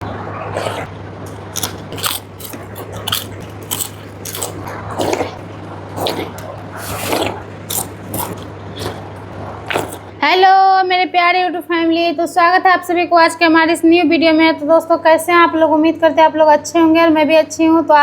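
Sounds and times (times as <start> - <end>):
steady low hum: 0.0 - 17.9
crunching crisp food: 0.5 - 10.1.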